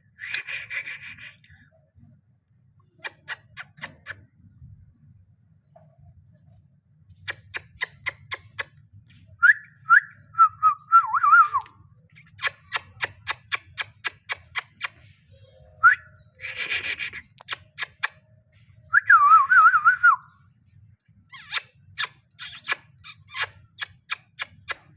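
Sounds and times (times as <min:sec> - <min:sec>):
harsh squawk: 0:15.9 - 0:18.1.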